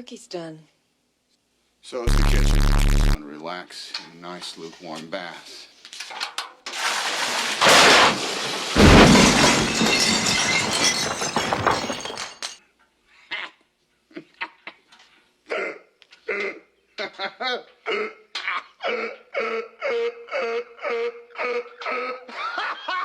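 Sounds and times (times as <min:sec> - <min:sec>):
crash with shattering: 0:06.7 - 0:12.6.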